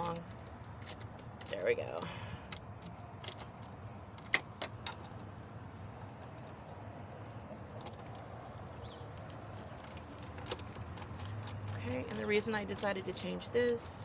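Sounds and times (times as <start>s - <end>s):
metallic tool clicks and clinks: 0.0s - 2.6s, 9.2s - 14.0s.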